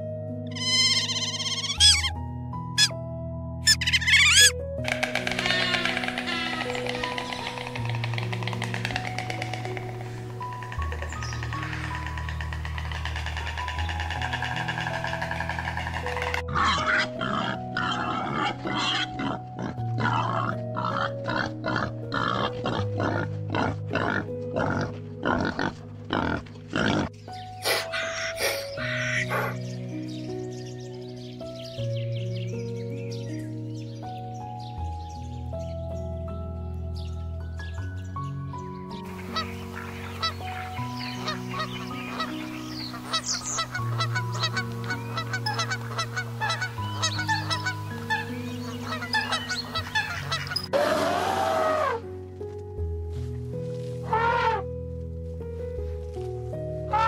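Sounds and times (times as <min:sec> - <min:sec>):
gentle background music: 0:00.0 - 0:57.0
geese honking: 0:00.5 - 0:02.1, 0:03.7 - 0:29.6, 0:39.0 - 0:52.0, 0:54.0 - 0:54.6
young wild boars grunting: 0:05.0 - 0:29.6.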